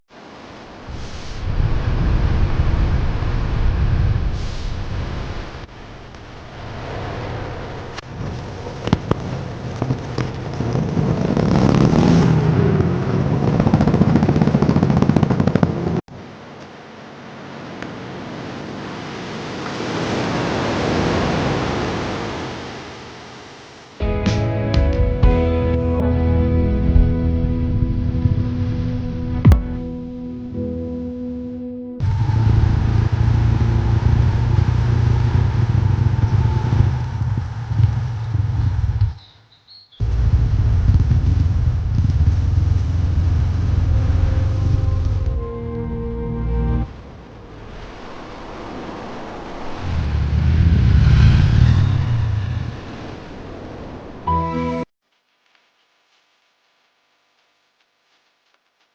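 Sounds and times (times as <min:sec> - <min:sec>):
rushing wind and road noise: 0:00.1 - 0:24.0, 0:32.0 - 0:46.0, 0:46.6 - 0:54.3
motorcycle engine under throttle: 0:08.8 - 0:16.0, 0:32.4 - 0:39.0, 0:40.0 - 0:45.2
held musical chord: 0:24.1 - 0:32.0, 0:43.9 - 0:46.9, 0:54.3 - 0:54.9.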